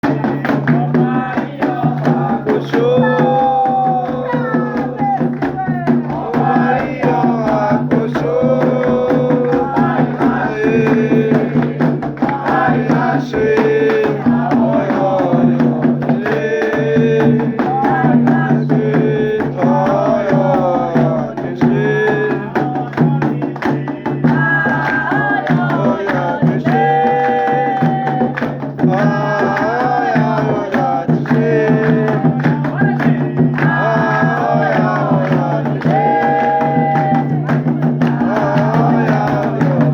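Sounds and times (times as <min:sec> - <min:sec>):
person singing: 0:00.0 - 0:39.9
steady percussion: 0:00.0 - 0:39.9.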